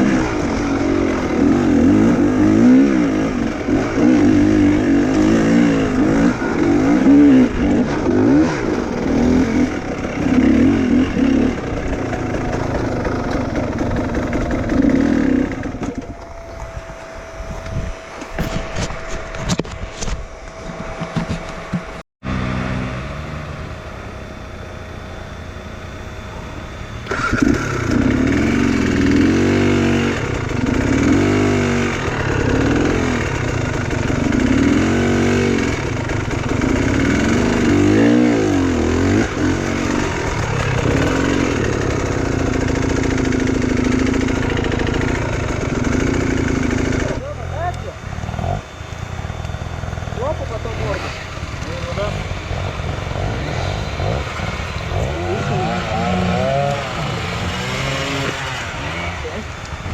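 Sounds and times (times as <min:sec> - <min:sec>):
motorcycle engine revving: 0:00.0 - 0:59.9
engine knocks: 0:11.5 - 0:16.7.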